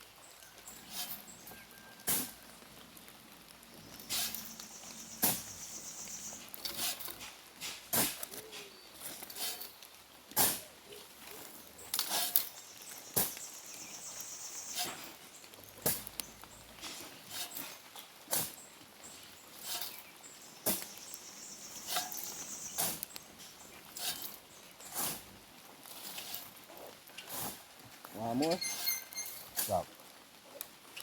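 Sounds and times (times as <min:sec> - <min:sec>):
raindrops tapping: 0:00.0 - 0:08.5, 0:14.9 - 0:17.0
high rain hiss: 0:00.0 - 0:09.7, 0:12.0 - 0:25.6.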